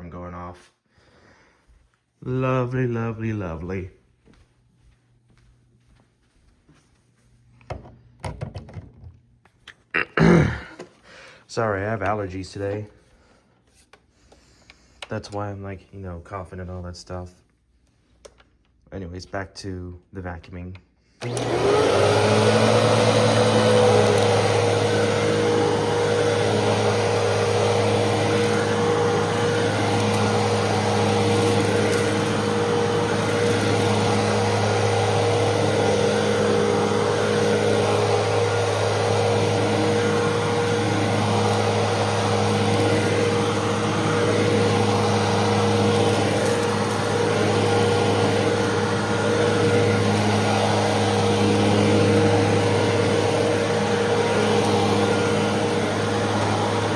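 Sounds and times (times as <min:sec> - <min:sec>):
vacuum cleaner motor running: 0:10.2 - 0:13.4, 0:21.2 - 0:56.9.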